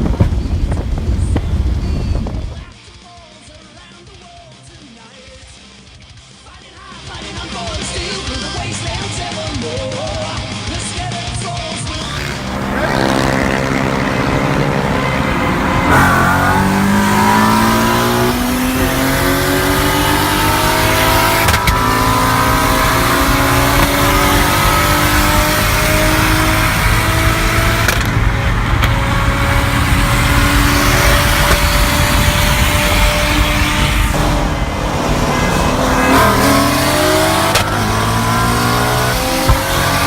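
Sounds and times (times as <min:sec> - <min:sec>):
car engine accelerating hard: 0:11.9 - 0:40.0.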